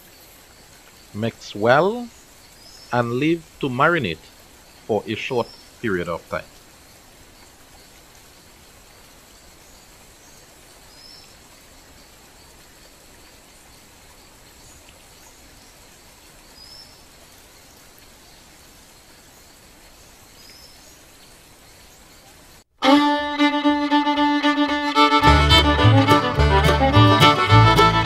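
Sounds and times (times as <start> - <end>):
small birds chirping: 0.0 - 8.0, 14.4 - 22.6
faint background hiss: 0.0 - 28.0.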